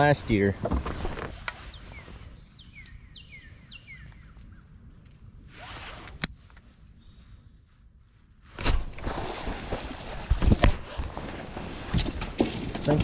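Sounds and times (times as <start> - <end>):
bird singing falling whistled notes: 1.6 - 4.6.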